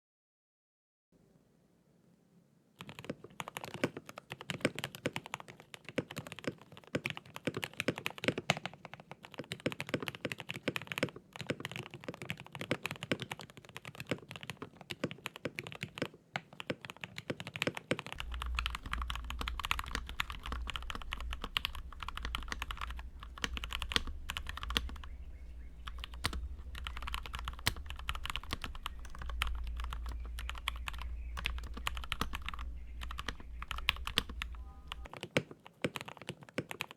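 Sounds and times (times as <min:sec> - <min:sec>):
mechanical keyboard typing: 0:02.8 - 0:36.9
low steady hum: 0:18.2 - 0:35.1.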